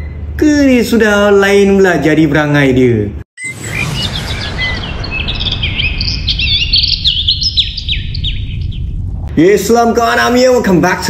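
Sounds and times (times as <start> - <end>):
birds chirping and twittering: 3.4 - 9.3
low rushing noise: 3.4 - 9.4.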